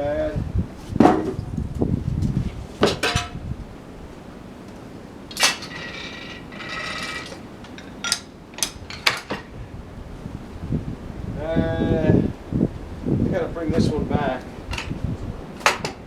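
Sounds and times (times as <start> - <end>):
metal clanks and knocks: 2.8 - 3.4, 5.3 - 9.6, 14.7 - 15.0, 15.6 - 16.0.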